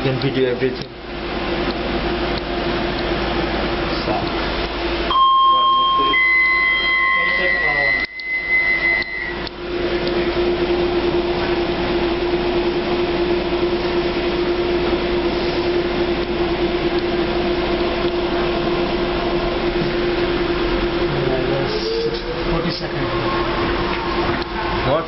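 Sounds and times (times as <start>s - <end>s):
constant hum: 0.0s - 25.0s
train rumbling: 17.5s - 25.0s.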